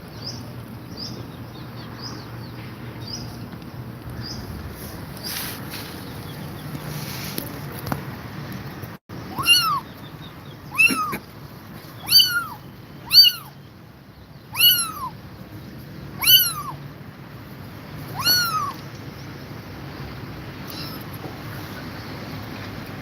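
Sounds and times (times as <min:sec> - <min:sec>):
kitten meowing: 0:09.3 - 0:09.9, 0:10.7 - 0:11.2, 0:12.0 - 0:13.6, 0:14.5 - 0:15.2, 0:16.2 - 0:16.8, 0:18.1 - 0:18.8, 0:20.6 - 0:21.1.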